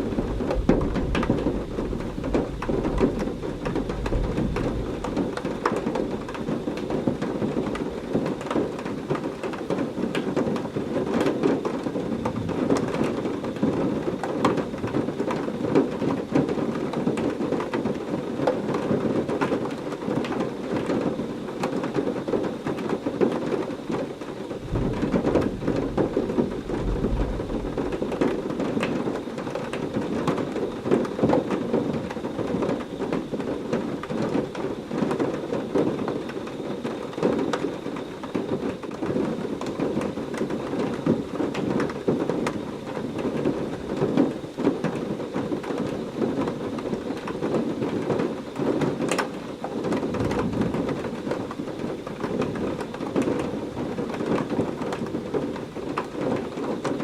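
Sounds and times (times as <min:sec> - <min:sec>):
thunder rumbling: 0:00.0 - 0:08.2, 0:11.8 - 0:14.1, 0:24.5 - 0:33.4
heavy rain falling: 0:00.0 - 0:57.0.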